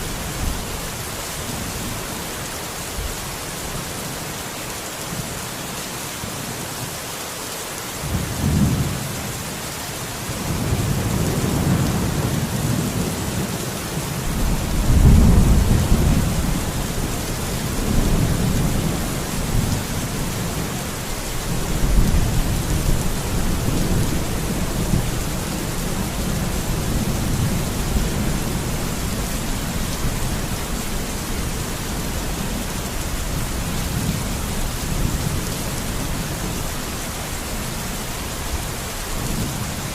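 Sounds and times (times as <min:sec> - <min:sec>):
steady rain: 0:00.0 - 0:39.9
rolling thunder: 0:14.3 - 0:19.9.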